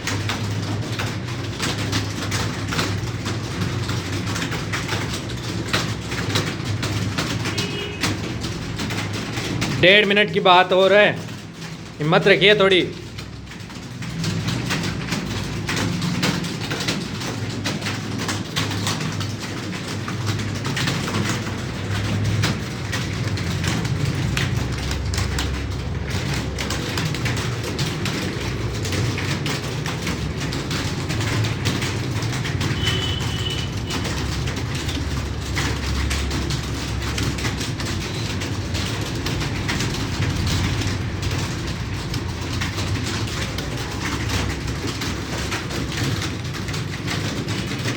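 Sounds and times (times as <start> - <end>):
keyboard keys clattering: 0.0 - 47.9.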